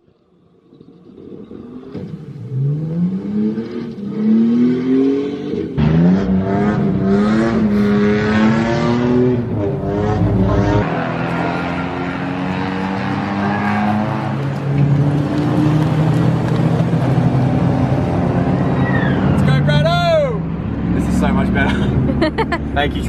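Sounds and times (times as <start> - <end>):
car engine revving hard: 1.9 - 19.3.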